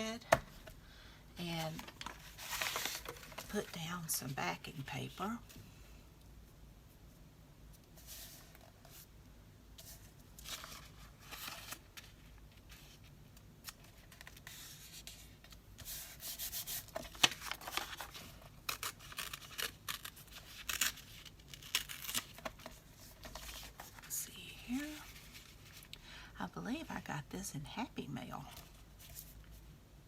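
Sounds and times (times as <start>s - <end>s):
paper rustling: 1.6s - 3.8s, 9.8s - 13.0s, 13.6s - 24.1s.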